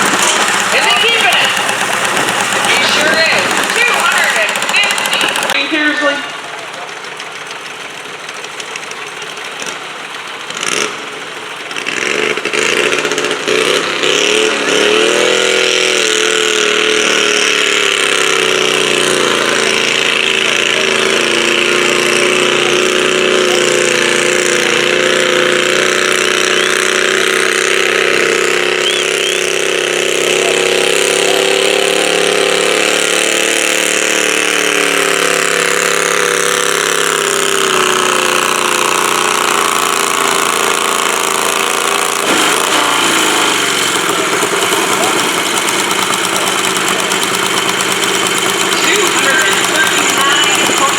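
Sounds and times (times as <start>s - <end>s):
garden tractor engine revving: 0.0s - 50.9s
sharp crack: 42.2s - 50.9s.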